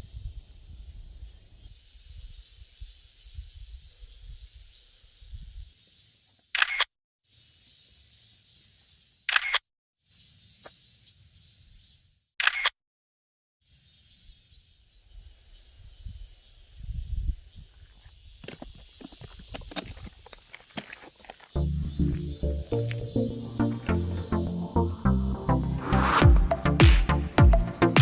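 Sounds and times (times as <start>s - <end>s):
camera shutter click: 6.6s - 6.9s, 9.3s - 9.6s, 12.4s - 12.8s.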